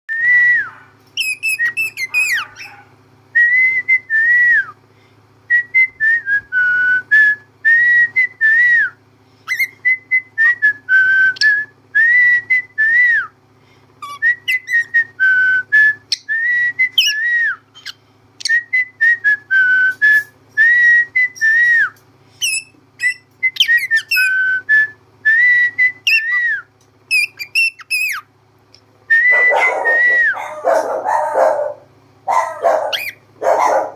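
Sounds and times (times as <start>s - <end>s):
faint low hum: 0.1s - 33.9s
cockatiel whistling: 0.3s - 2.8s, 9.5s - 13.0s, 14.0s - 28.3s, 29.1s - 31.5s, 32.4s - 33.9s
cockatiel chirps: 1.2s - 2.8s, 22.4s - 24.3s, 27.1s - 28.2s, 32.9s - 33.2s.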